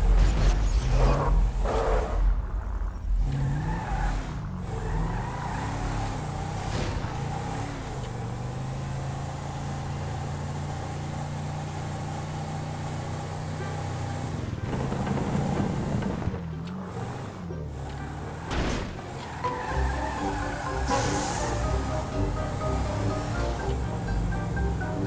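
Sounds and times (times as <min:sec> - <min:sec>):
car engine revving: 0:12.5 - 0:25.0.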